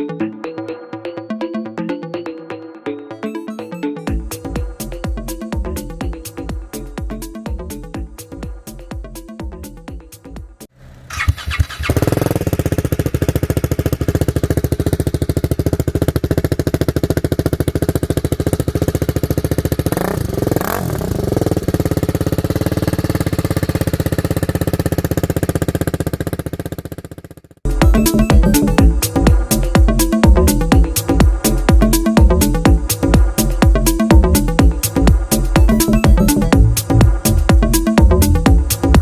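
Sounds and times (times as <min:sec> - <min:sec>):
motorcycle engine idling: 0:04.1 - 0:39.0
motorcycle engine starting: 0:10.6 - 0:39.0
engine throttle blip: 0:10.8 - 0:29.3.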